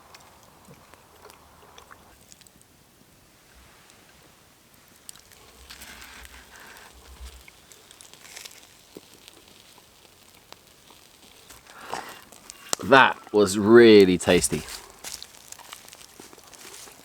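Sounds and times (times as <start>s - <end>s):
faint clicks and rustles: 3.4s - 13.4s, 14.0s - 17.0s.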